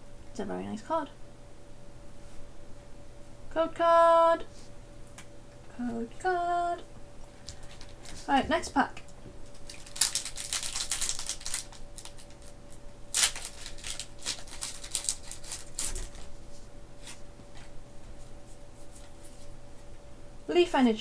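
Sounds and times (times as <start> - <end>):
foil wrapper crinkling: 7.4 - 8.4, 9.4 - 16.5.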